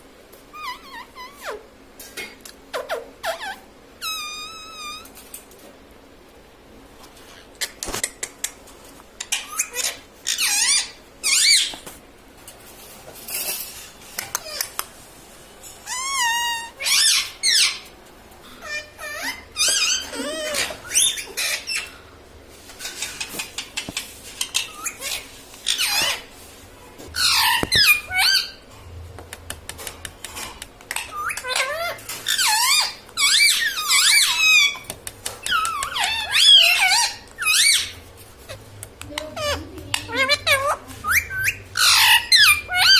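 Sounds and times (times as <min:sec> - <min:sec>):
parakeet squeaky calls: 0:02.8 - 0:05.1, 0:09.2 - 0:11.8, 0:15.8 - 0:17.8, 0:18.6 - 0:22.0, 0:24.4 - 0:26.3, 0:27.2 - 0:28.6, 0:30.9 - 0:38.6, 0:39.4 - 0:42.9.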